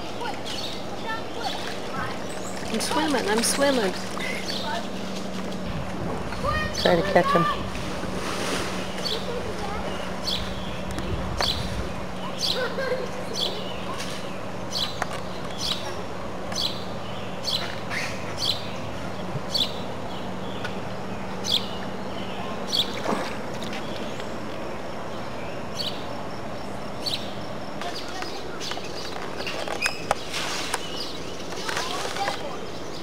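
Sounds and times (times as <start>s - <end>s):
steady low hum: 0.0s - 33.0s
bird chirping: 8.7s - 23.0s, 23.7s - 33.0s.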